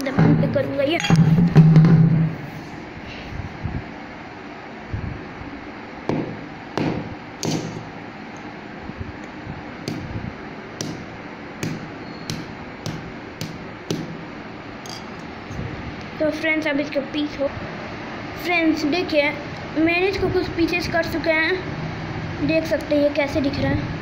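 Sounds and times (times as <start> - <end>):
sharp knocks on frozen tomato: 6.1 - 7.8.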